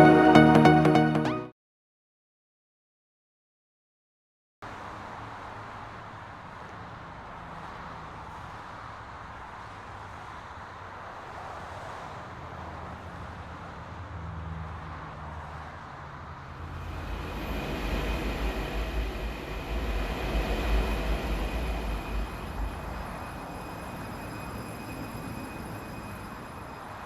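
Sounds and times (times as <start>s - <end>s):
train rumbling on track: 16.5s - 27.0s
high steady whine: 16.6s - 27.0s.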